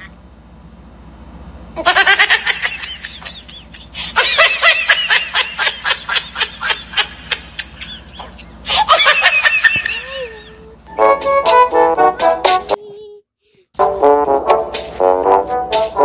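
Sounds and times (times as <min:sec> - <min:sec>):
high-pitched giggling: 0:01.8 - 0:10.9.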